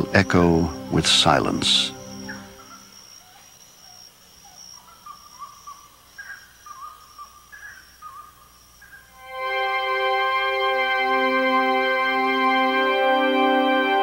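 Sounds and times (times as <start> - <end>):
music: 0.0 - 2.8, 9.2 - 14.0
steady high thin tone: 0.0 - 6.0
bird whistled calls: 0.0 - 9.2.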